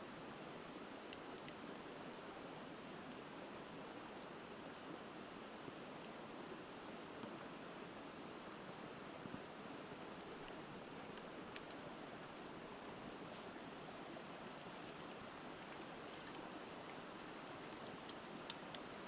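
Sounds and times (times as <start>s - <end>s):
river flowing: 0.0s - 19.0s
bonfire pops and crackles: 14.7s - 19.0s.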